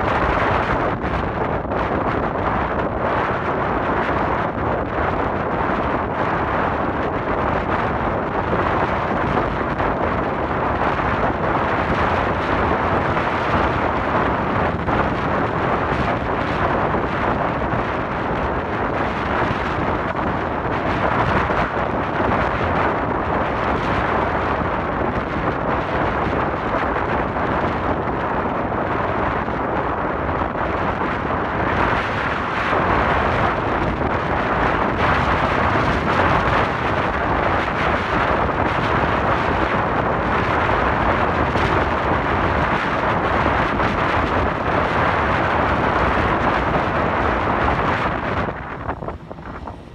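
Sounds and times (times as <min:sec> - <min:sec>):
wind rushing: 0:00.0 - 0:49.9
road noise: 0:41.0 - 0:49.9.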